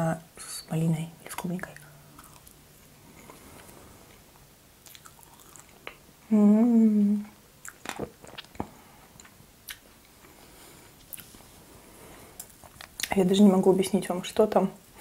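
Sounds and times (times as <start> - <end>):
soft chewing: 1.3 - 6.1, 7.2 - 13.2
person humming mmm: 6.2 - 7.4.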